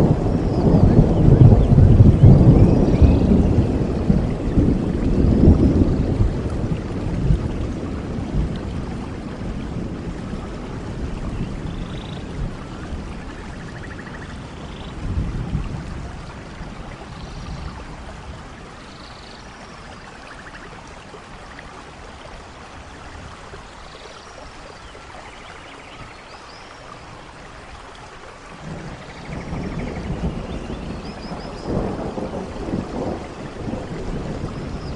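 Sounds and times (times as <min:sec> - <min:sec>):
thunder rumble: 0:00.0 - 0:18.9, 0:28.5 - 0:34.9
steady rainfall: 0:00.0 - 0:34.9.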